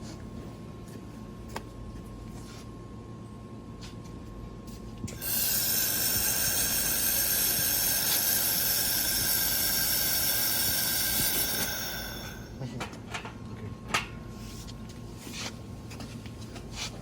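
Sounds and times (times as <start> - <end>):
high whistling tones: 5.2 - 12.6
hiss of shielding gas: 5.2 - 12.6.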